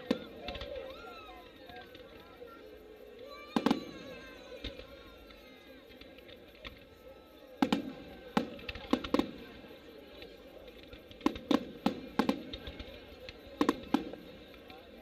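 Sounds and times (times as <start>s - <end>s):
firework shells bursting: 3.6s - 6.9s, 7.6s - 14.9s.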